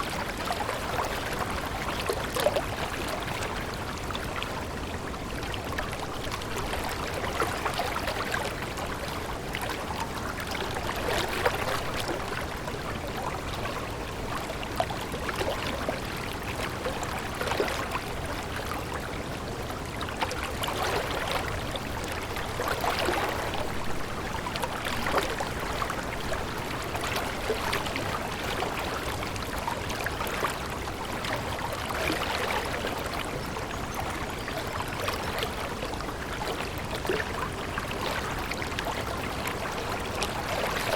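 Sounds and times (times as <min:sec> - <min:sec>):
stream flowing with splashes: 0:00.0 - 0:40.9.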